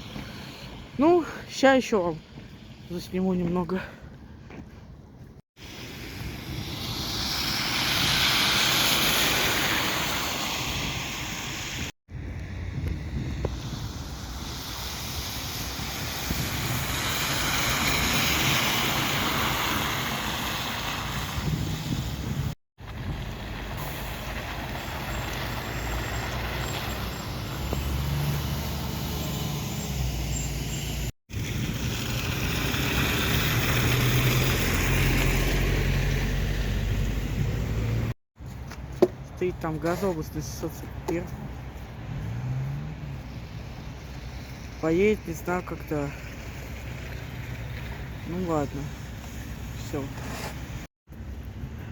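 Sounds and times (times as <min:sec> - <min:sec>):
road noise: 0:00.0 - 0:51.9
bus engines running: 0:12.2 - 0:51.9.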